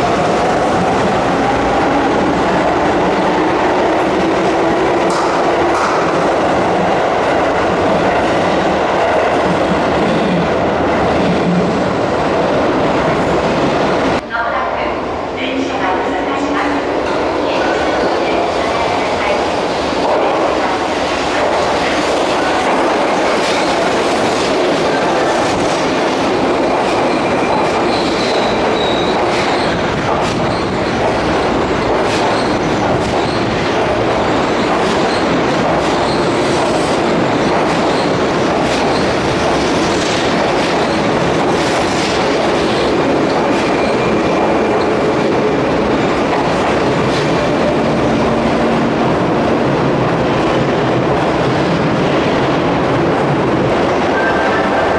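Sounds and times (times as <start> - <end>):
electric train rumbling: 0.0 - 54.9.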